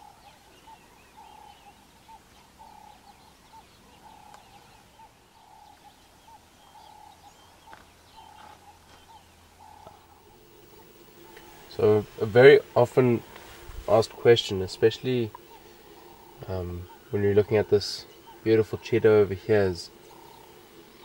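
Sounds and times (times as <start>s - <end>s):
higher bird chirps and twitters: 13.1s - 21.0s.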